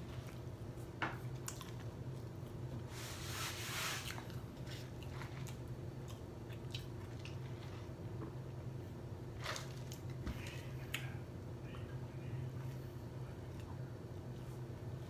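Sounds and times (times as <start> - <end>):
steady low hum: 0.0 - 15.0
person chewing: 4.1 - 7.8.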